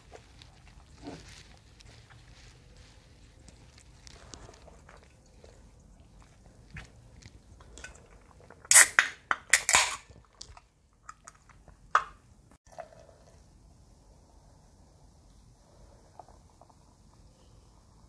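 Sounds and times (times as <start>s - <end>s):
noodle slurping: 0.0s - 8.9s
chewing with wet mouth clicks: 3.4s - 8.7s, 10.1s - 11.8s.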